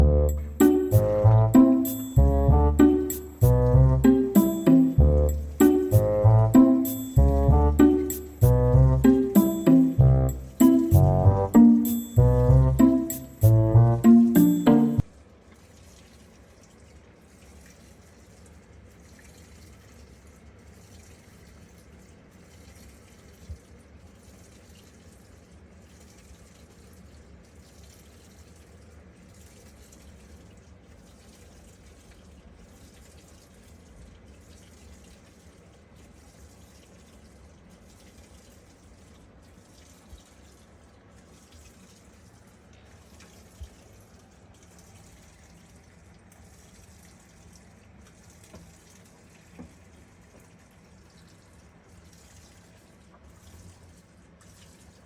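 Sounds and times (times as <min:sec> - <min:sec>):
washing machine low hum: 0:00.0 - 0:16.2
water sloshing in washing machine: 0:14.8 - 0:55.0.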